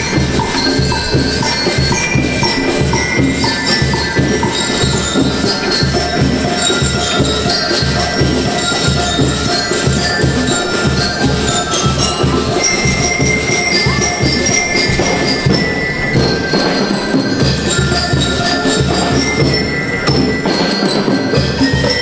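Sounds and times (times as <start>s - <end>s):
bell lyres playing melody: 0.0s - 22.0s
drums beating march rhythm: 0.0s - 22.0s.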